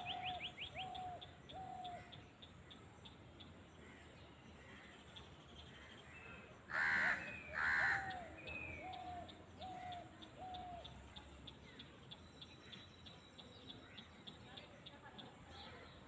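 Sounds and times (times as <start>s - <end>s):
crow cawing: 6.7s - 8.2s.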